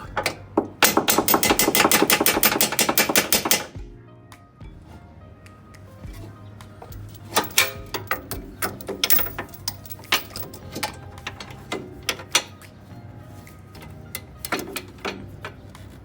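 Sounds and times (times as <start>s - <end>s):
metallic clicks and knocks of tools: 0.1s - 3.8s, 6.9s - 12.6s.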